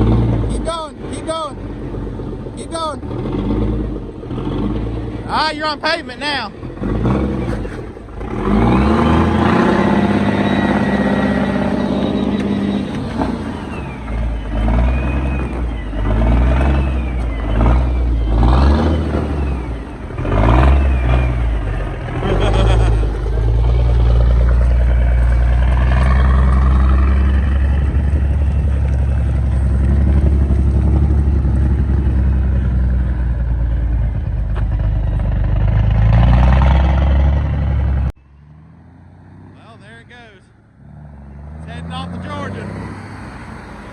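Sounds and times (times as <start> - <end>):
vehicle engine pulling away: 0.0 - 43.9.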